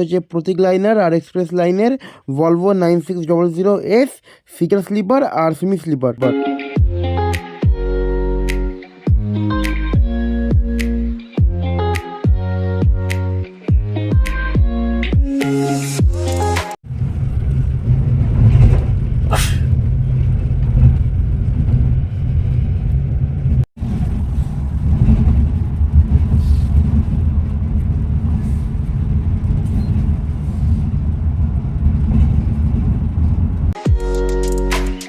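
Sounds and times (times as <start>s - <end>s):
coach engine and road rumble: 16.4s - 34.8s.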